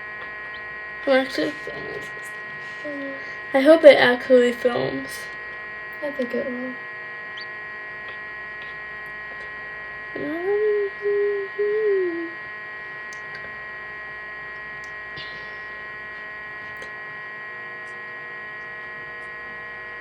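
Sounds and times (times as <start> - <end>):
incubator humming: 0.0 - 20.0
person humming: 1.1 - 3.3, 10.2 - 12.4.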